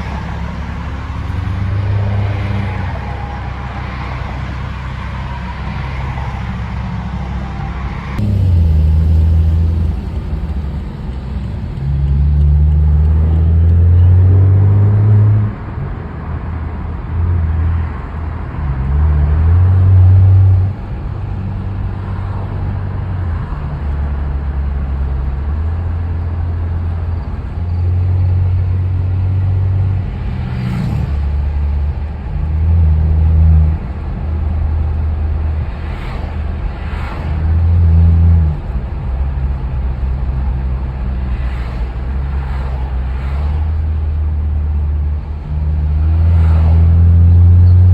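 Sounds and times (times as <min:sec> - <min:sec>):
car exhaust revving: 0:00.0 - 0:15.5.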